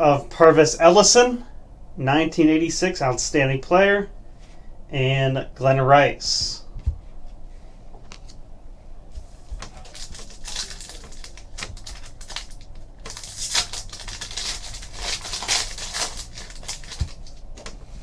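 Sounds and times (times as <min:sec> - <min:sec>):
packaging crinkling: 0:09.6 - 0:17.8.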